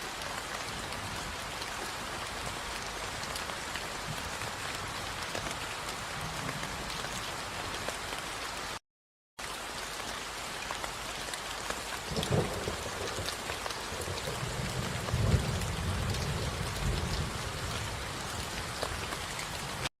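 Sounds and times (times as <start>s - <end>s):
steady rain falling: 0.0s - 8.8s, 9.4s - 19.9s
low thunder rolls: 12.2s - 18.6s.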